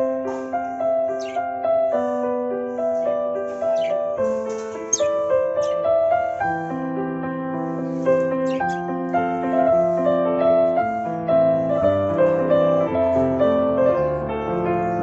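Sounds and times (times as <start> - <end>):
slow piano music: 0.0 - 15.0
budgies chirping: 1.0 - 1.6, 3.5 - 6.4, 8.1 - 9.0.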